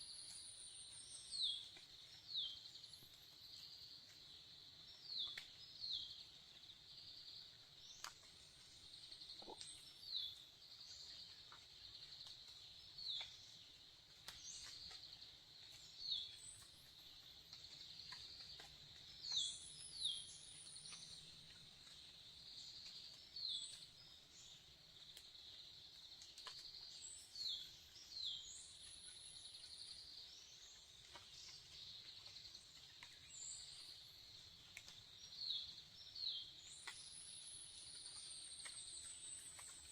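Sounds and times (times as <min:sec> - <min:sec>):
insect chirring: 0:00.1 - 0:13.6, 0:14.2 - 0:39.9
small birds short calls: 0:09.3 - 0:10.0.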